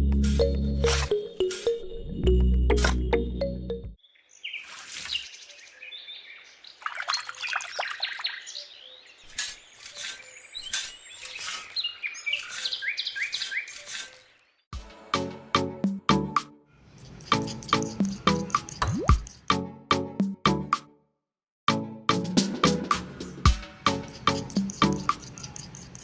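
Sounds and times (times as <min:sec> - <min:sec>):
birds chirping and singing: 0:04.0 - 0:14.6.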